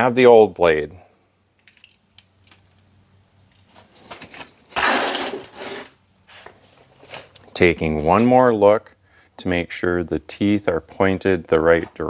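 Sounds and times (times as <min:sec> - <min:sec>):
rattling scrape: 0:04.3 - 0:06.0.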